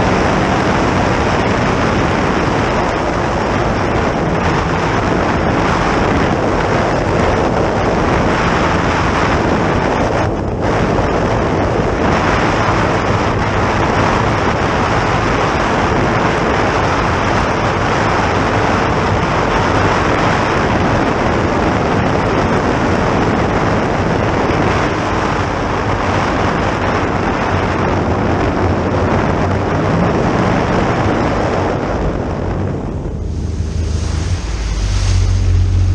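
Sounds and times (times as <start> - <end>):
outboard engine: 0.0 - 35.9
water rushing past boat: 0.0 - 35.9
wind rushing over microphone: 0.0 - 35.9.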